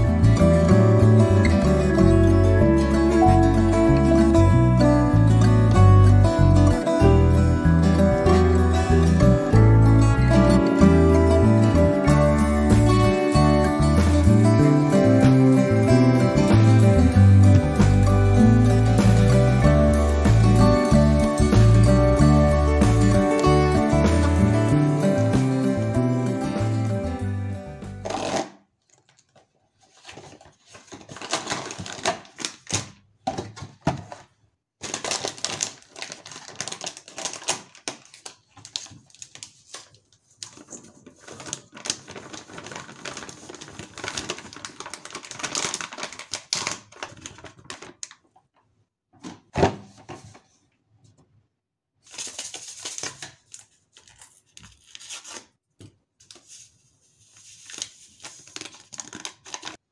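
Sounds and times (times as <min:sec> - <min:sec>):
plastic bag crinkling: 0:28.0 - 0:33.0, 0:34.0 - 0:48.4, 0:57.4 - 0:59.9.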